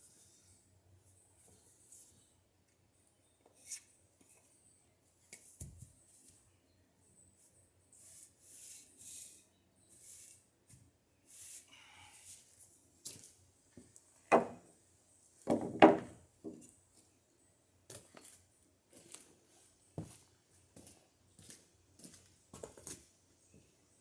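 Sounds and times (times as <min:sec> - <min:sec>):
wooden boards knocking on pile: 0:14.3 - 0:14.6, 0:15.5 - 0:16.6.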